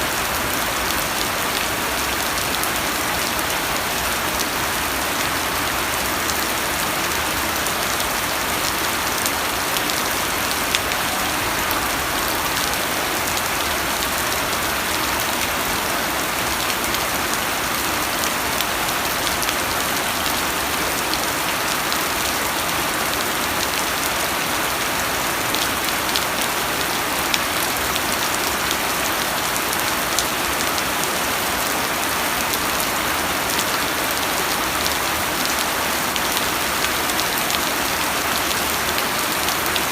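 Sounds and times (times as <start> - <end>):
rain hissing: 6.4 - 15.8.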